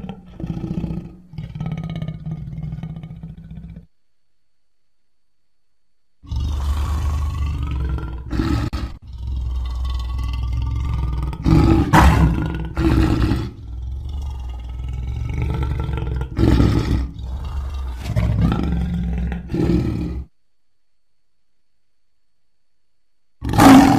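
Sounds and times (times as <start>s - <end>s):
lion roaring and growling: 0.0s - 3.9s, 6.2s - 20.3s, 23.4s - 23.9s.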